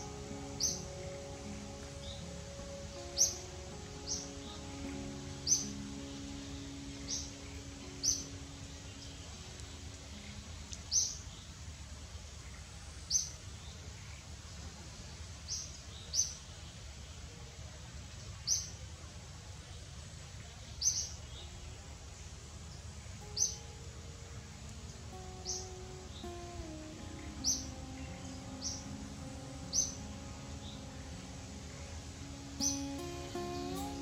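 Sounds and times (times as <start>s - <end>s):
faint music notes: 0.0s - 12.0s, 21.2s - 34.0s.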